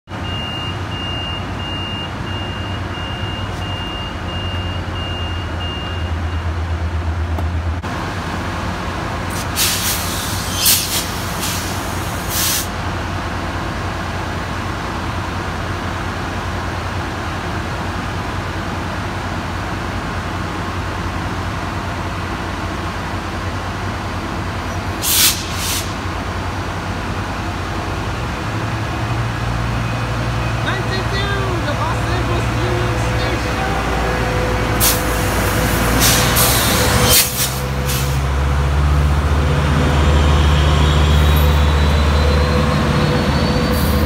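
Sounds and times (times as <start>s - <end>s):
diesel train rumbling: 0.1s - 44.0s
train door warning beeps: 0.2s - 6.6s
air hissing: 9.3s - 12.8s, 25.0s - 26.0s, 34.8s - 38.2s.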